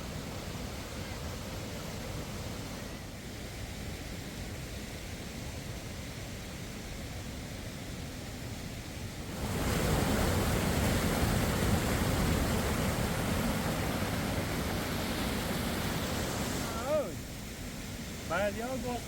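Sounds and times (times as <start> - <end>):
waterfall rushing: 9.2 - 19.0.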